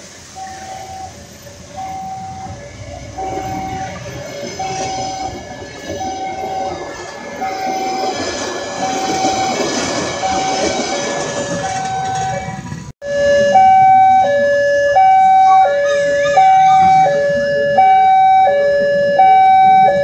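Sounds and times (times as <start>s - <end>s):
crossing warning tone: 0.0s - 20.0s
train wheels clattering: 1.4s - 12.9s.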